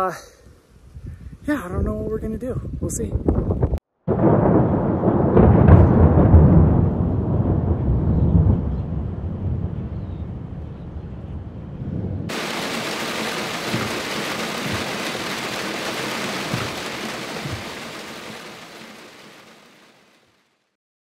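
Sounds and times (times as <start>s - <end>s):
heavy rain pouring: 12.3s - 20.4s.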